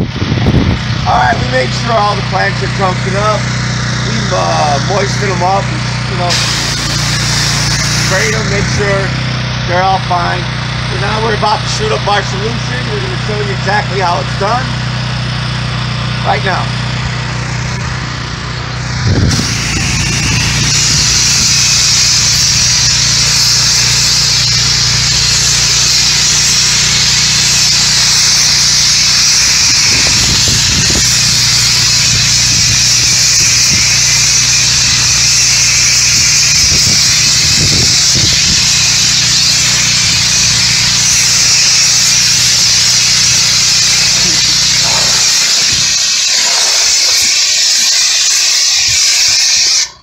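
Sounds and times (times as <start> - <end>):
pressure washer engine running: 0.0 - 50.0
hiss of water spray: 6.3 - 8.2, 19.3 - 49.7.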